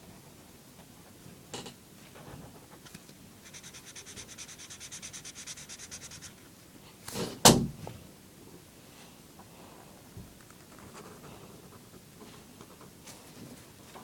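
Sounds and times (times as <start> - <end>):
scribbling on paper: 3.4 - 6.4.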